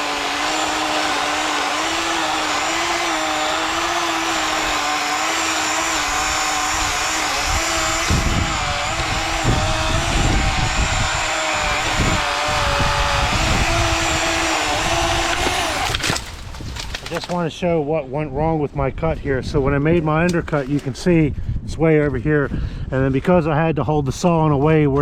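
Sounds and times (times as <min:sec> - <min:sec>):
electric chainsaw cutting wood: 0:00.0 - 0:17.3
heavy low thumps: 0:06.1 - 0:15.6.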